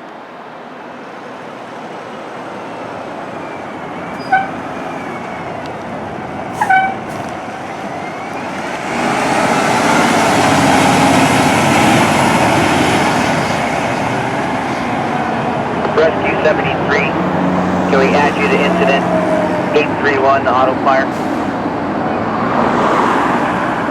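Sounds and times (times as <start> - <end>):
fire engine driving: 0.0 - 23.9
short pitched horn blasts: 4.2 - 4.6, 6.6 - 7.0.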